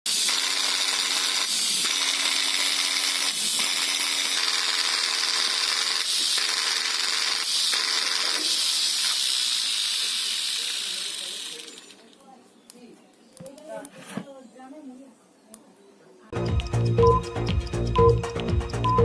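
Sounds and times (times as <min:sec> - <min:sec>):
angle grinder running: 0:00.1 - 0:12.1.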